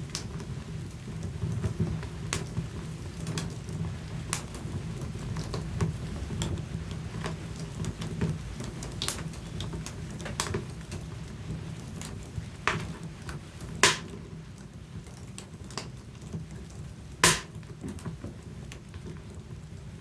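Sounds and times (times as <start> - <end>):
low rumble of flames: 0.0 - 20.0
wood fire crackling: 0.0 - 20.0.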